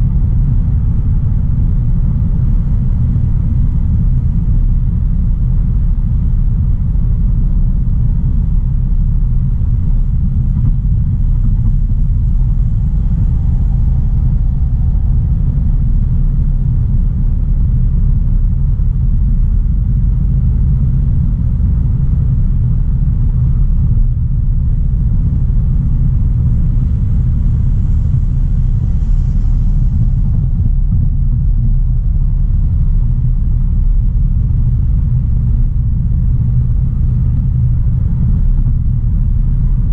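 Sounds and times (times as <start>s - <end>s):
car driving rumble: 0.0s - 39.9s.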